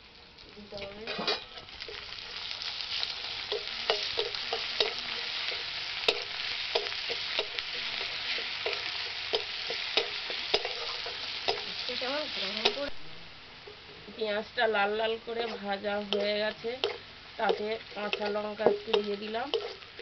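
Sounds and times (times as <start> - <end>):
onions sizzling in hot oil: 0.0 - 20.0
metal spatula scraping a pan: 1.0 - 11.7, 16.2 - 20.0.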